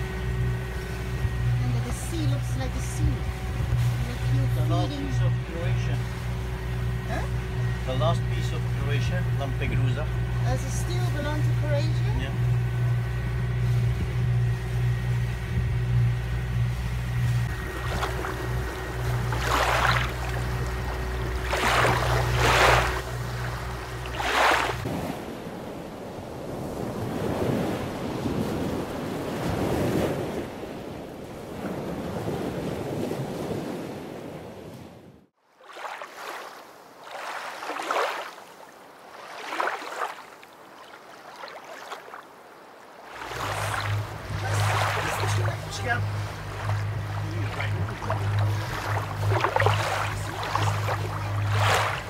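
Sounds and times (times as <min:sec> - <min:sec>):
low engine hum: 0:00.0 - 0:33.0, 0:43.0 - 0:52.0
water swishing past hull: 0:00.0 - 0:52.0
wind noise: 0:13.1 - 0:14.6.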